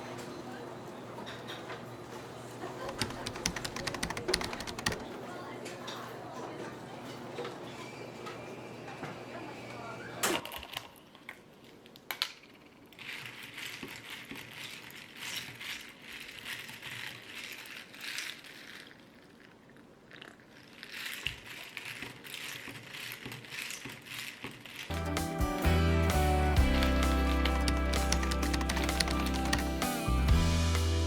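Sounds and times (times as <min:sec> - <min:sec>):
crinkling and rustling: 0:10.6 - 0:24.9.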